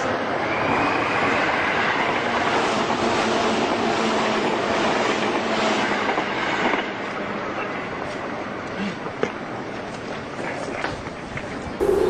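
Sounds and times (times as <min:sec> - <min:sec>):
electric train running: 0:11.8 - 0:12.0
faint whine: 0:11.8 - 0:12.0.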